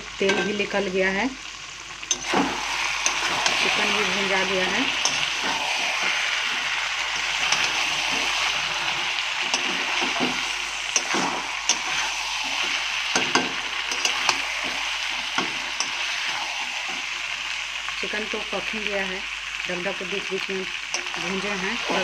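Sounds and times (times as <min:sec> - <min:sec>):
chicken sizzling in oil: 0:00.0 - 0:22.0
spatula scraping pan: 0:02.0 - 0:17.2, 0:20.9 - 0:22.0.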